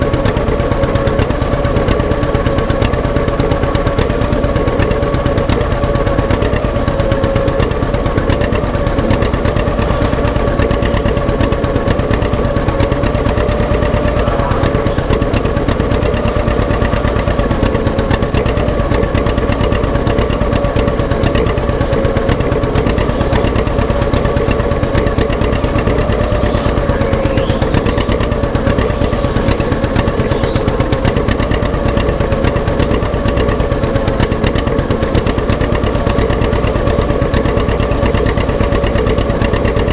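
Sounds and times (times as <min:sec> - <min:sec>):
steady whine: 0:00.0 - 0:39.9
tractor engine running: 0:00.0 - 0:39.9.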